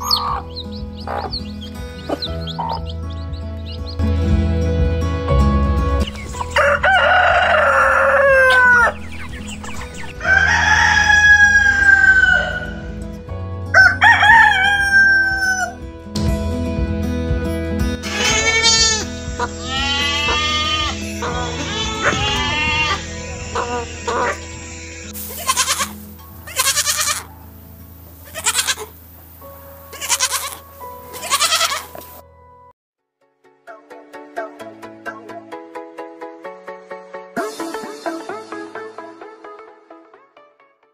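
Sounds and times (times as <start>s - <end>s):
background music: 0.0s - 40.9s
rooster crowing: 6.4s - 9.0s, 10.1s - 12.9s, 13.7s - 15.8s
goats bleating: 18.0s - 24.4s, 25.2s - 27.3s, 28.2s - 28.9s, 29.9s - 32.0s.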